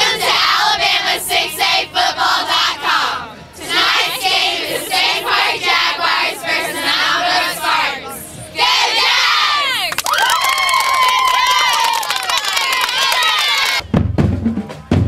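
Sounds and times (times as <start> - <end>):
high voices chanting: 0.0 - 9.9.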